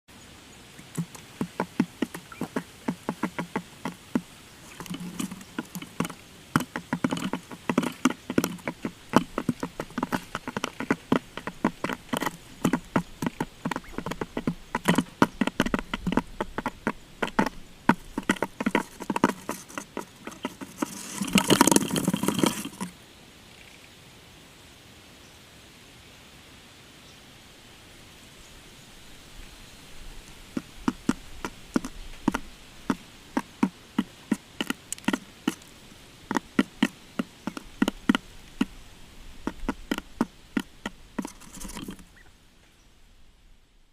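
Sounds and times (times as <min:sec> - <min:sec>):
birds tapping and clicking: 0:00.8 - 0:22.9, 0:30.6 - 0:35.7, 0:36.3 - 0:38.8, 0:39.4 - 0:42.3.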